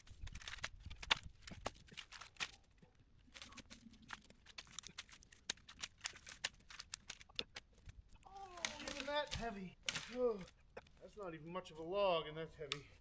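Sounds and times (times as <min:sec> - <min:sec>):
twigs snapping and crackling: 0:00.0 - 0:11.6, 0:12.6 - 0:13.0
branches being dragged: 0:08.3 - 0:11.9.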